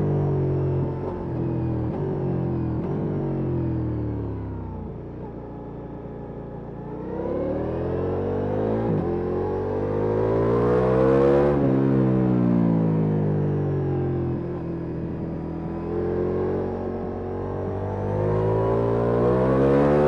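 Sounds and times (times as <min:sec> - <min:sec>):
motorcycle engine accelerating: 0:07.0 - 0:20.0.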